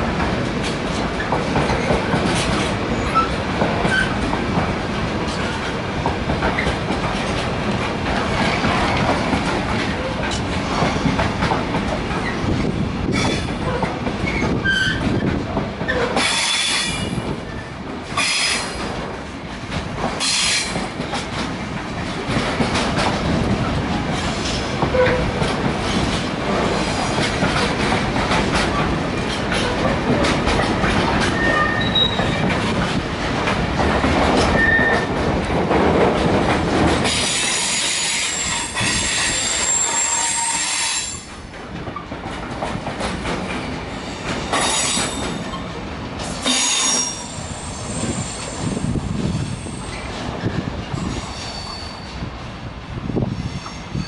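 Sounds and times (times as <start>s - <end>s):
train wheels clattering over rails: 0.0s - 54.0s
high-pitched wheel squeals: 31.4s - 32.4s, 37.6s - 41.3s, 51.1s - 52.1s.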